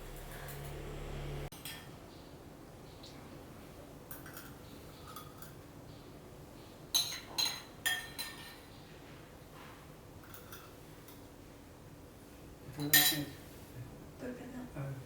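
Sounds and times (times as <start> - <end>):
spoon clinking against bowl: 6.9 - 8.7, 12.8 - 13.4.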